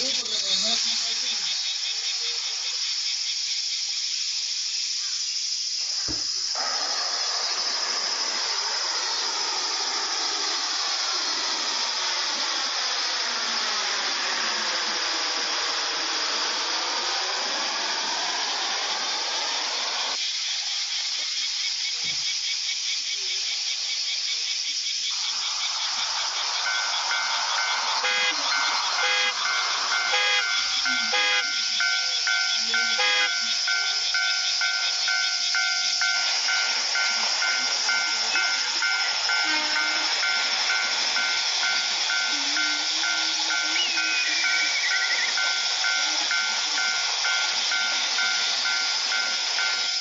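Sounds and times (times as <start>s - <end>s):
steady high-pitched hiss: 0.0s - 50.0s
vehicle passing: 25.1s - 35.6s.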